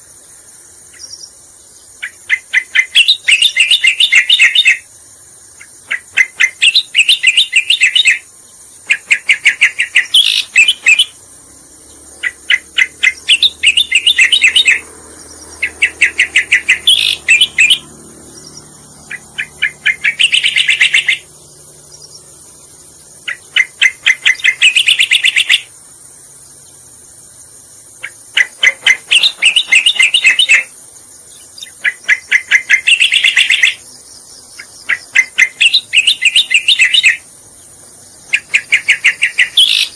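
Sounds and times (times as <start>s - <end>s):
bird rapid chirping song: 0.8s - 39.9s.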